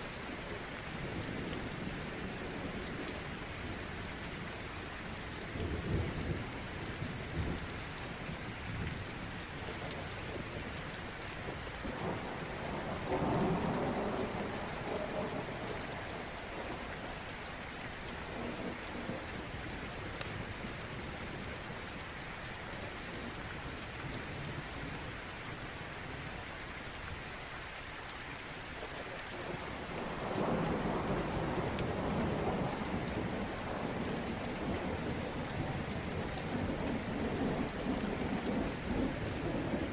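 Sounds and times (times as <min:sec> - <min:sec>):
steady rain: 0:00.0 - 0:39.9
low rolls of thunder: 0:11.8 - 0:17.2, 0:18.1 - 0:21.5, 0:29.4 - 0:39.9.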